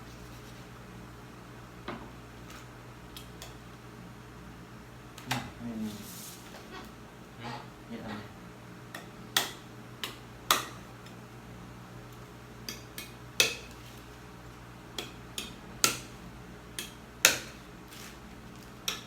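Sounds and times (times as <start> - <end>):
knife chopping on a board: 8.9 - 10.8, 12.7 - 13.8, 14.9 - 16.2, 16.8 - 18.1.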